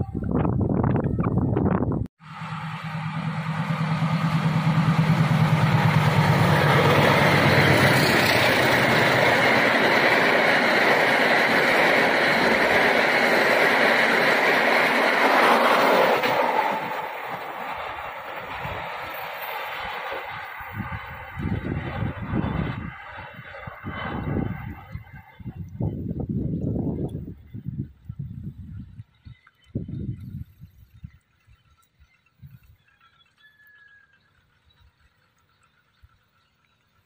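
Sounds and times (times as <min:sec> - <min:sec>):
freight wagons rolling past: 0:02.2 - 0:25.6.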